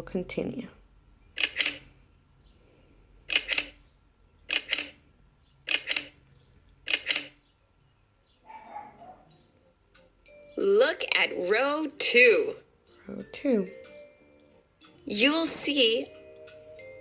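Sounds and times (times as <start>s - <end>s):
sharp double clicks: 1.4s - 1.9s, 3.3s - 3.8s, 4.5s - 5.0s, 5.6s - 6.2s, 6.8s - 7.4s.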